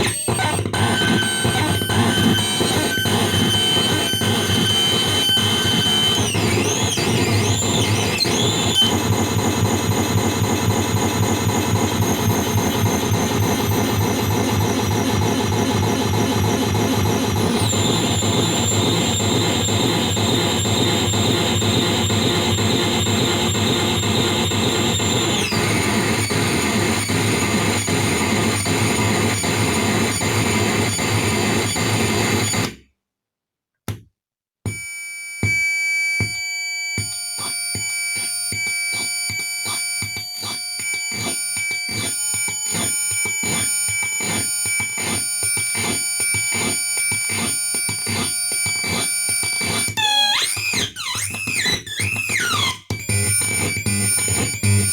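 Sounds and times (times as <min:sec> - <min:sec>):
harsh noise drone: 0:00.3 - 0:32.6.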